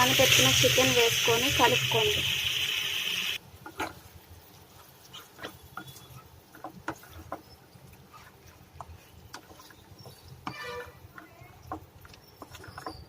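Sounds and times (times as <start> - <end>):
chicken frying in oil: 0.0 - 13.0
spoon stirring in pot: 4.7 - 13.0.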